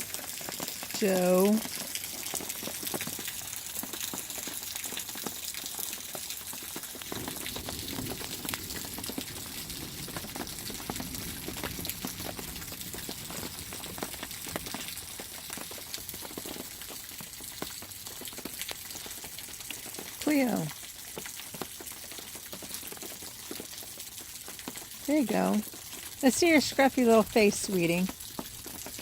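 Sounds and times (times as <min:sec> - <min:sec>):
rain on an awning: 0:00.0 - 0:29.0.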